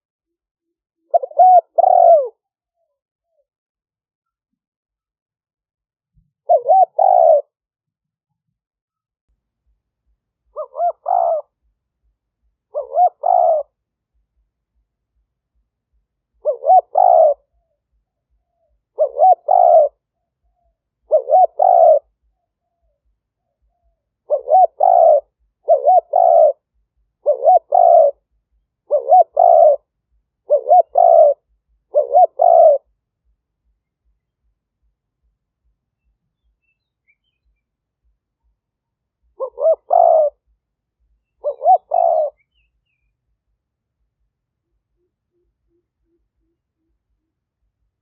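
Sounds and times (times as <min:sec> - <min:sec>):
dove cooing: 0:01.0 - 0:02.4, 0:06.4 - 0:07.6, 0:10.5 - 0:11.7, 0:12.7 - 0:13.8, 0:16.3 - 0:32.9, 0:39.2 - 0:40.6, 0:41.3 - 0:42.7.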